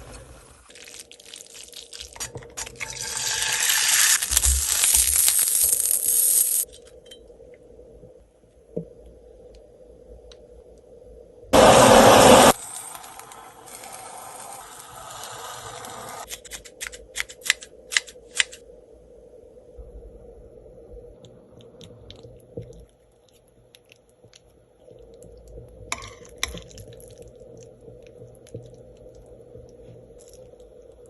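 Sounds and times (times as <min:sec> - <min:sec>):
steady low hum: 0:18.6 - 0:23.7.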